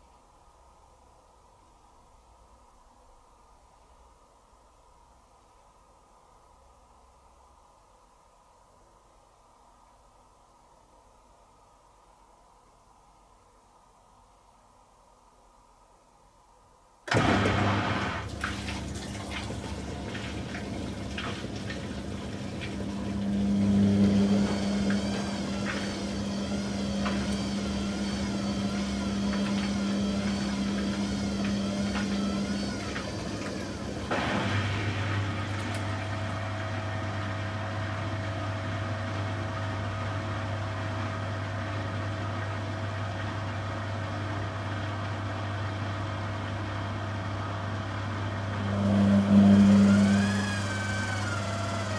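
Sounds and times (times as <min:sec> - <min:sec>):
washing machine motor hum: 0:17.1 - 0:51.9
water sloshing: 0:18.2 - 0:36.6
wavering whine: 0:22.4 - 0:37.1, 0:48.5 - 0:51.9.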